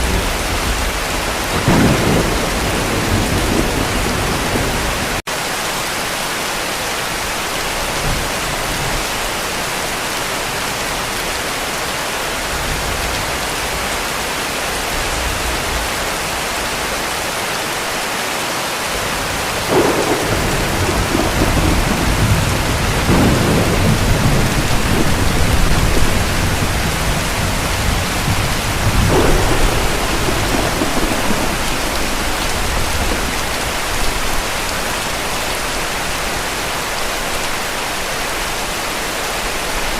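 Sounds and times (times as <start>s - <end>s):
distant thunder rumbles: 0.0s - 5.2s, 19.3s - 35.7s
heavy rain: 0.0s - 39.9s.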